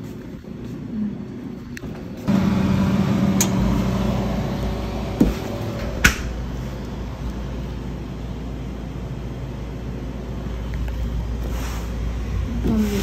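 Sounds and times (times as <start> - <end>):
car engine and road hum: 2.2 - 8.0.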